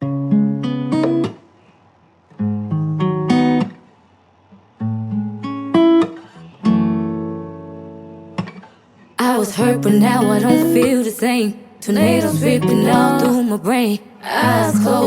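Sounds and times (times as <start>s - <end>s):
acoustic guitar picked chords: 4.8s - 8.6s, 9.2s - 15.0s.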